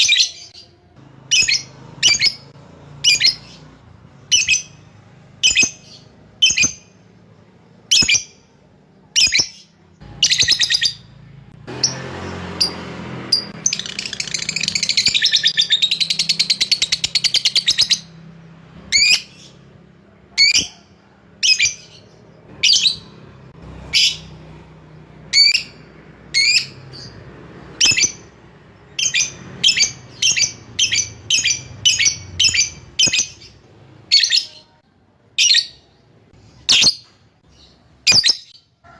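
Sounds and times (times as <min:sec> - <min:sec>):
bird chirping: 0:00.0 - 0:38.8
bird fast chattering trill: 0:13.4 - 0:18.2.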